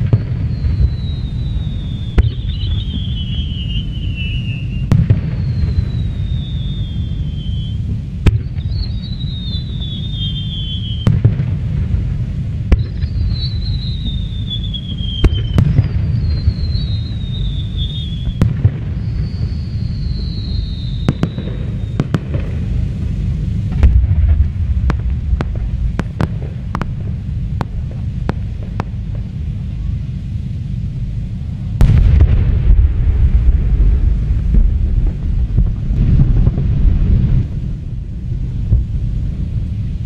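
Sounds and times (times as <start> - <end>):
whistling firework shell: 0.0 - 35.9
sharp firework bangs: 0.0 - 39.9
deep rumbling booms: 0.0 - 40.0.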